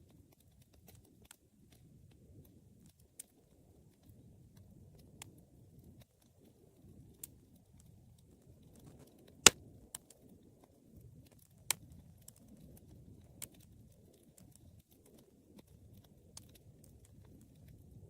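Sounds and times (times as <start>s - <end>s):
fire crackling and popping: 0.0s - 18.0s
low rumble of flames: 0.0s - 18.0s.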